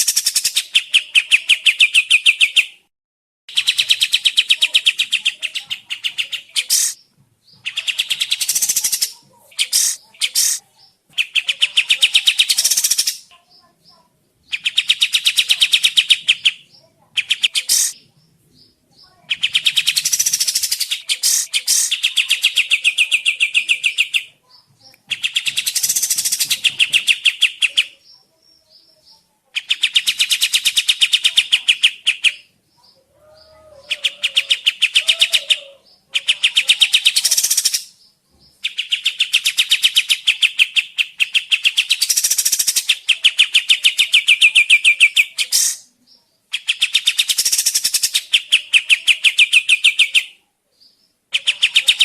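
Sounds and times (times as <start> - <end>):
songbird trilling: 3.5 - 7.0, 7.6 - 10.6, 11.2 - 13.3, 14.5 - 18.0, 19.0 - 24.3, 25.0 - 28.8, 29.6 - 45.9.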